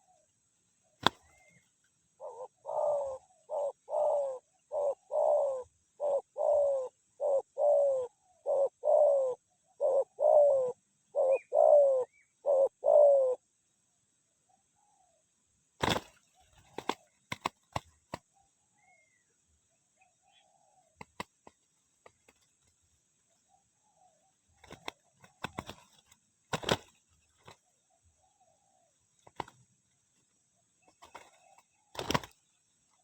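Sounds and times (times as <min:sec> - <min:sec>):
wings flapping: 0:01.0 - 0:01.6, 0:15.8 - 0:18.2, 0:21.0 - 0:22.9, 0:24.5 - 0:27.7, 0:29.2 - 0:29.6, 0:30.9 - 0:32.6
doves cooing: 0:02.2 - 0:13.4, 0:23.5 - 0:29.6, 0:30.8 - 0:32.4.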